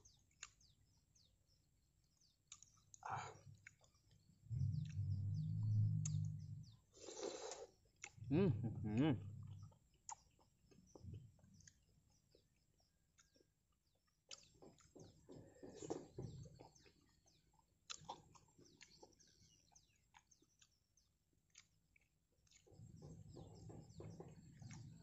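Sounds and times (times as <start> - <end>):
chewing crunchy snacks: 2.3 - 4.9, 7.0 - 8.3, 9.4 - 25.0.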